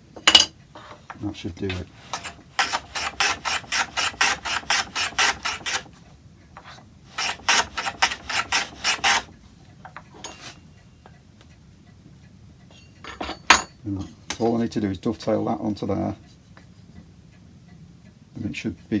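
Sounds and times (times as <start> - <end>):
hand tool cutting wood: 1.6 - 6.0, 6.6 - 9.4.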